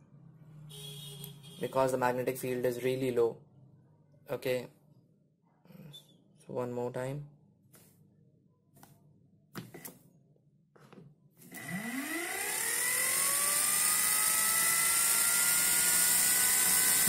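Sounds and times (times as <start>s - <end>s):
electric motor whine: 11.4s - 17.0s.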